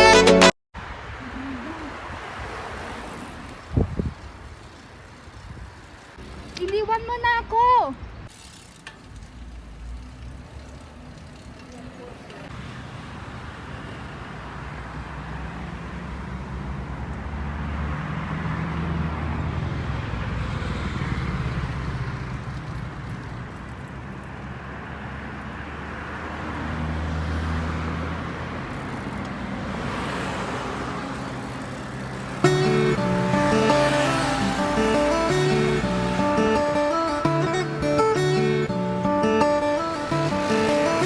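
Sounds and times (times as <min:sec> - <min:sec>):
background music: 0:00.0 - 0:00.5, 0:32.4 - 0:41.0
vehicles passing: 0:00.0 - 0:41.0.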